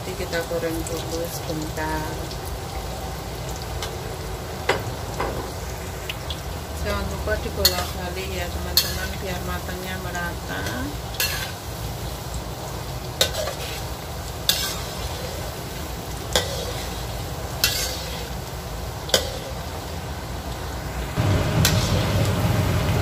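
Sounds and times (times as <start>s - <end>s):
frying in hot oil sizzle: 0.0s - 23.0s
low rumble: 21.1s - 23.0s.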